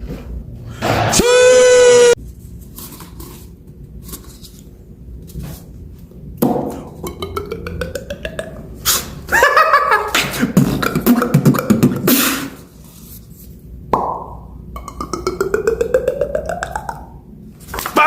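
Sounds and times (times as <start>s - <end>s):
beatboxing vocal effects: 6.8s - 9.3s, 10.2s - 12.6s, 14.8s - 17.2s.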